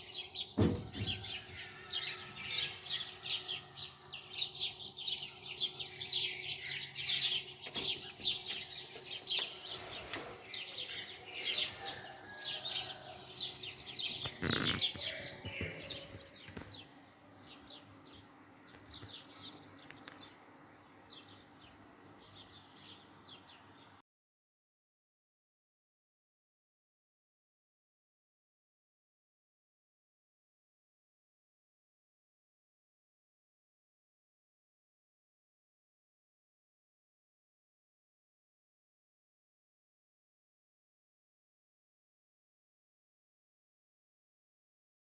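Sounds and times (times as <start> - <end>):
birds chirping: 0.0 - 24.0
knock: 0.6 - 1.2.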